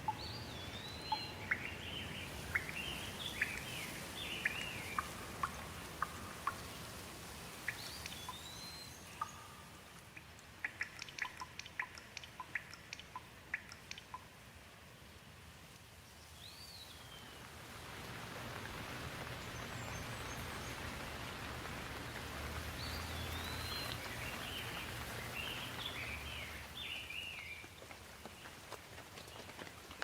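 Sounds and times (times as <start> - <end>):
birds chirping: 0.0 - 14.2, 18.8 - 28.6
rain hissing: 0.0 - 30.0.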